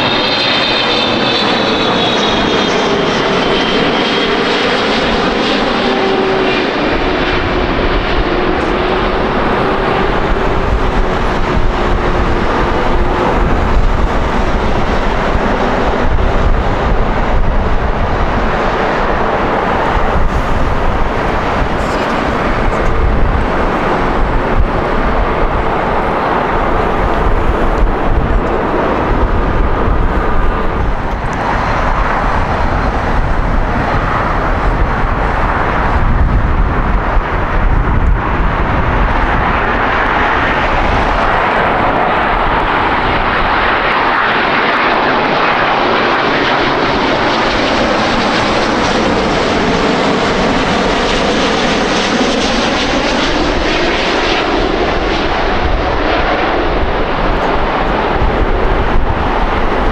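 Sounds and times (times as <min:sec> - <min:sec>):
jet airliner engines: 0:00.0 - 0:59.9.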